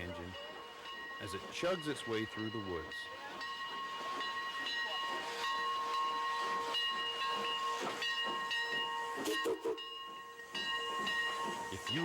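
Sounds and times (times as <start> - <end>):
steam locomotive whistle: 8.9 - 10.0.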